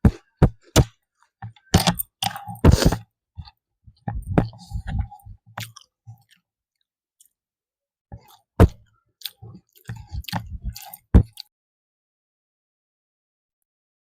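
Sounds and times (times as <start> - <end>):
person chewing food: 0.1 - 6.4, 8.2 - 11.5.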